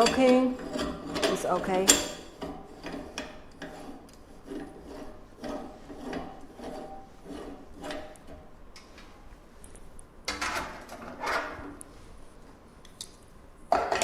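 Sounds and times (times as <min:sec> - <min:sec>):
metal scraping on threads: 0:00.0 - 0:08.4.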